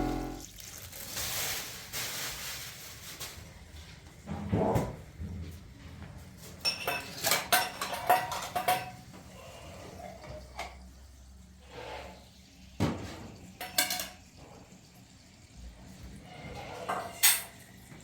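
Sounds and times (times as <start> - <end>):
dishes and cutlery clinking: 6.6 - 9.1, 13.0 - 14.2, 16.5 - 17.6.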